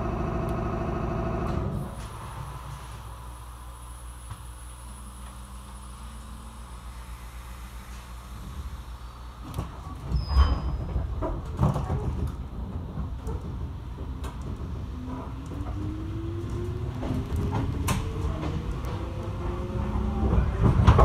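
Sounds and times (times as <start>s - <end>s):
train knocks and thuds: 9.4s - 21.0s.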